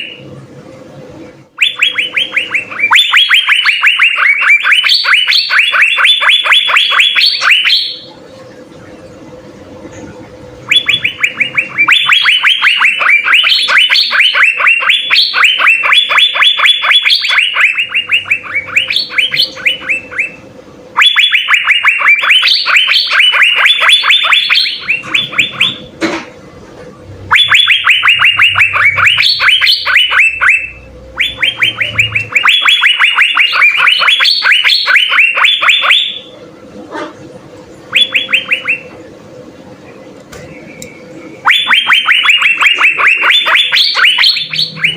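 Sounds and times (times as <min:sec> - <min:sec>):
faint steady hum: 0:00.0 - 0:44.9
bird singing rapid high notes: 0:01.6 - 0:08.1, 0:10.7 - 0:20.4, 0:21.0 - 0:25.9, 0:27.2 - 0:36.3, 0:37.9 - 0:39.0, 0:40.5 - 0:44.9.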